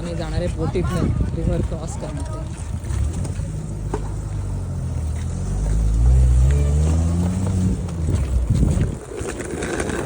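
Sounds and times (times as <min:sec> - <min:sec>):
vehicle engine revving: 0:03.0 - 0:08.9.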